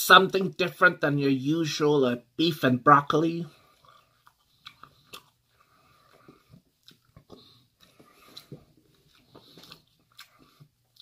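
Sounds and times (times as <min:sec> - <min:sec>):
person chewing: 0:03.5 - 0:11.0.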